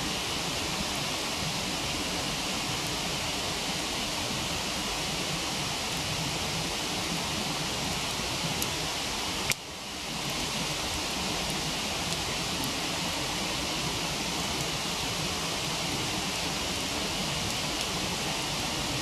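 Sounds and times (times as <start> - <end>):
waterfall rushing: 0.0 - 19.0
campfire crackling pops: 5.2 - 19.0.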